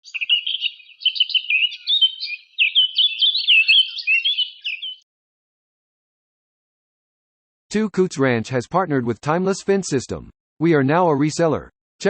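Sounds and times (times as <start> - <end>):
bird chirping and whistling: 0.0 - 5.0.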